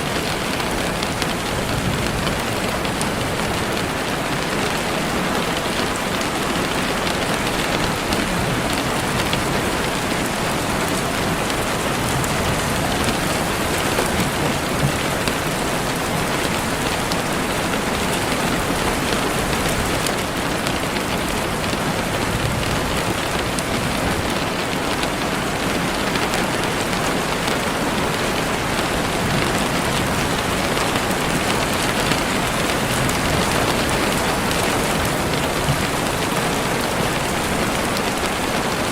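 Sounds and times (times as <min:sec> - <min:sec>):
heavy rain on leaves: 0:00.0 - 0:38.9.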